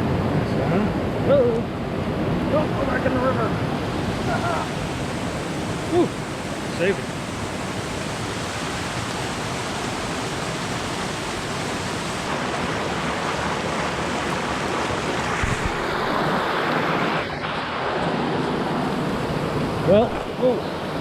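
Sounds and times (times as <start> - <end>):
fast mountain stream rushing: 0.0 - 21.0.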